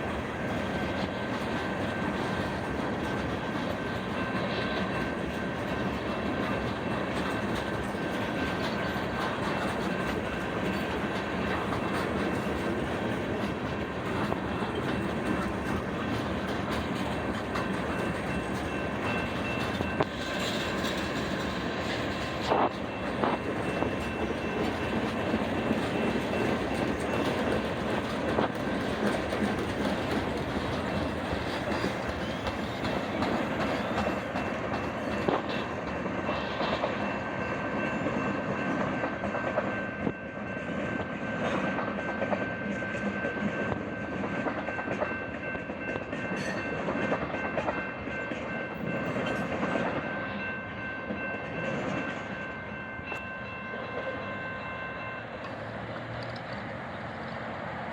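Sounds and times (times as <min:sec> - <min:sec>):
wheels clicking over rail joints: 0:00.0 - 0:39.8, 0:55.2 - 0:57.9
freight train rumbling past: 0:00.0 - 0:57.9.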